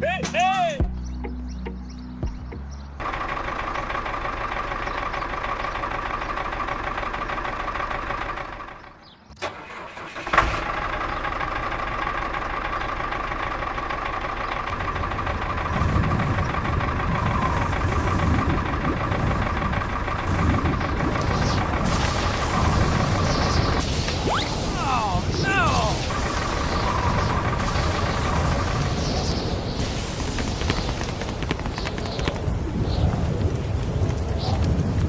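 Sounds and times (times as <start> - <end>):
engine running: 1.1 - 35.0.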